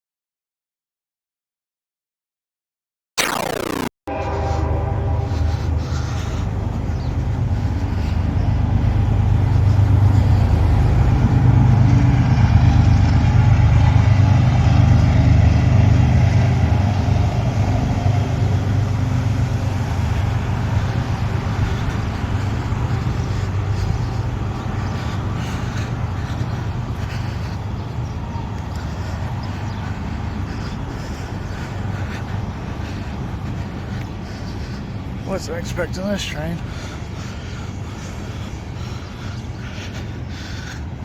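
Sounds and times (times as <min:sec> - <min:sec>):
heavy vehicle rumbling past: 0:04.2 - 0:35.4.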